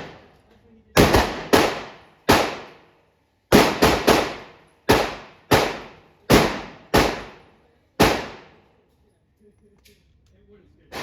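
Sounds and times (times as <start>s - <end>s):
gunshots: 0.0s - 0.3s, 1.0s - 2.8s, 3.5s - 8.6s.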